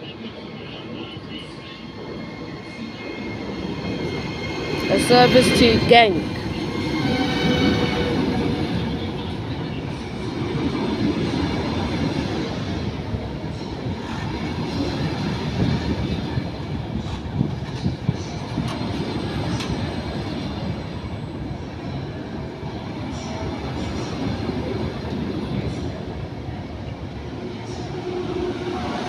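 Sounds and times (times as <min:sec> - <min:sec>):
train rumbling: 0:00.0 - 0:29.0.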